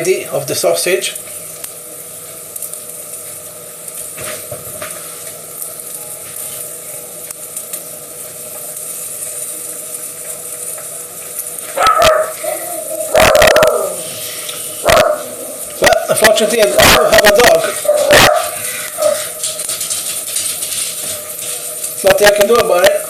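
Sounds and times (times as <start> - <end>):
steady background hum: 0.0 - 23.0
dog barking: 11.8 - 14.1, 14.8 - 16.2, 17.8 - 19.4.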